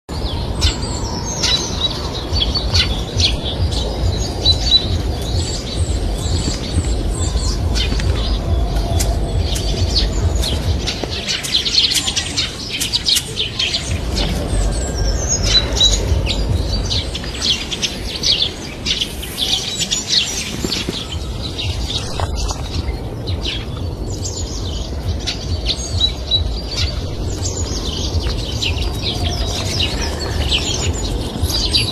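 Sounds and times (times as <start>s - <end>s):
small birds chirping: 0.1s - 31.9s
low steady rumble: 13.9s - 17.2s, 21.1s - 31.9s.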